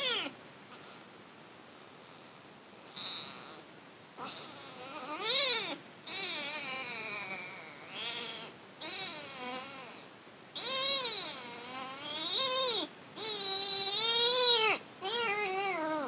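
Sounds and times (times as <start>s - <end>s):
kitten meowing: 0.0s - 0.4s, 4.2s - 10.0s, 10.6s - 16.0s.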